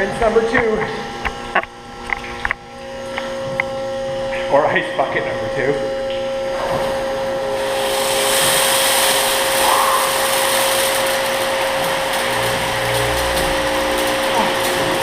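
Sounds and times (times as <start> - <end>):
machine hum: 0.0 - 15.0
water spray hissing: 7.4 - 15.0.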